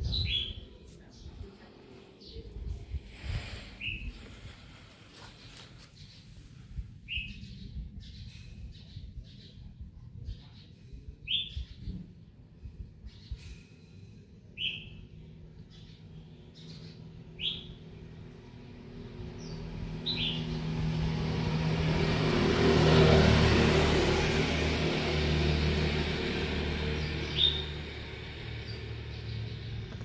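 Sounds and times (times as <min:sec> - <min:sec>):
motor vehicle passing: 0:00.2 - 0:06.4, 0:18.5 - 0:30.0
small bird chirping: 0:27.0 - 0:30.0.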